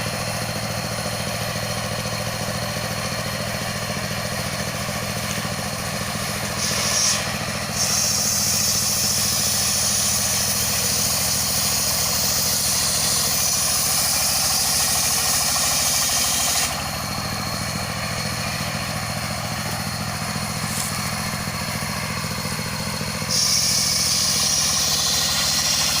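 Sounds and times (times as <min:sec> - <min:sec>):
engine running steadily: 0:00.0 - 0:26.0
saw blade whining through log: 0:00.0 - 0:26.0.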